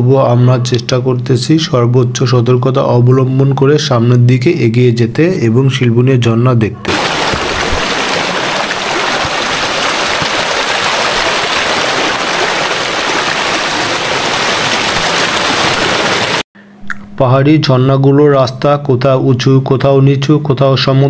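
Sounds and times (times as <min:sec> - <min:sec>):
water rushing in rocky stream: 0:06.9 - 0:16.4.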